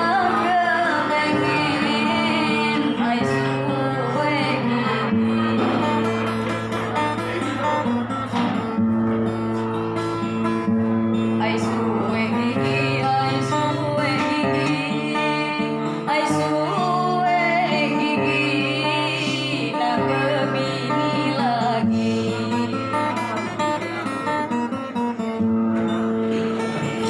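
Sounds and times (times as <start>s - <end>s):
guitar accompaniment: 0.0s - 27.0s
person singing: 11.7s - 23.2s.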